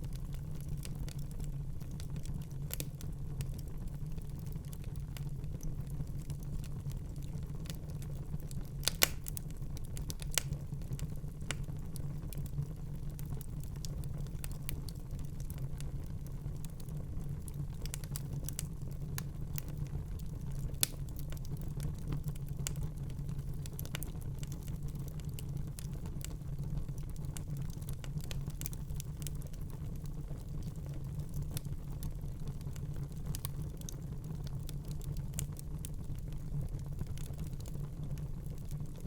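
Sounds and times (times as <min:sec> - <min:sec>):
low rumble of flames: 0:00.0 - 0:39.0
fire pops and snaps: 0:00.1 - 0:12.5, 0:13.1 - 0:39.0.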